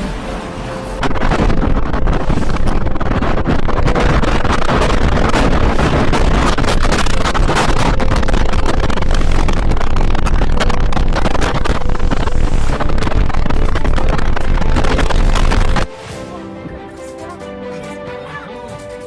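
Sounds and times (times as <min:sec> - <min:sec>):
strong wind buffeting microphone: 0:00.9 - 0:15.9
sharp crackles: 0:01.0 - 0:15.9.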